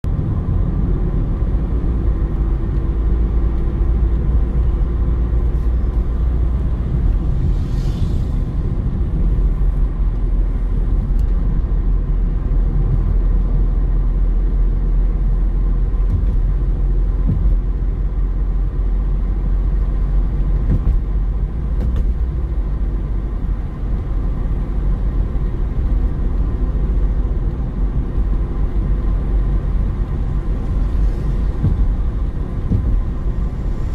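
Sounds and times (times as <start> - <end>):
car road and engine rumble: 0.0 - 33.9
brief hiss: 7.4 - 8.6.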